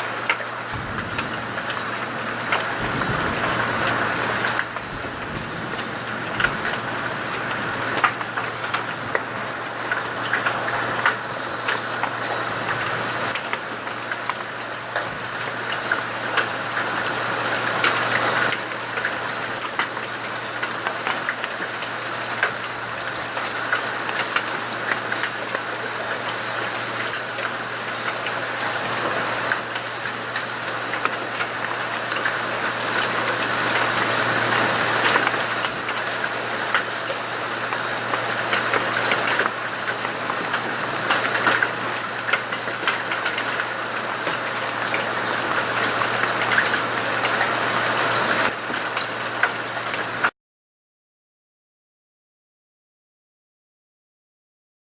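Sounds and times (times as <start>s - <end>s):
heavy rain hissing: 0.0s - 19.6s, 28.2s - 49.4s
hailstones ticking on hard surfaces: 0.3s - 50.3s
steady low hum: 0.7s - 10.2s.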